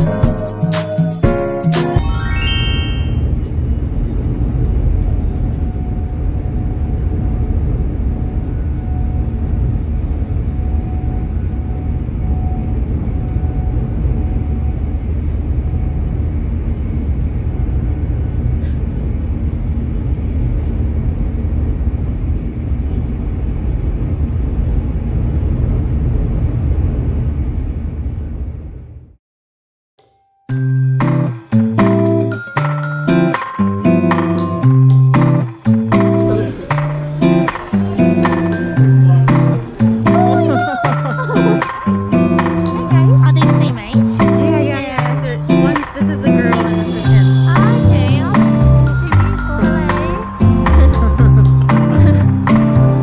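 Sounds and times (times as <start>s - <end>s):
faint whine: 3.1s - 23.4s
train rumble inside carriage: 3.3s - 29.1s, 42.3s - 53.0s.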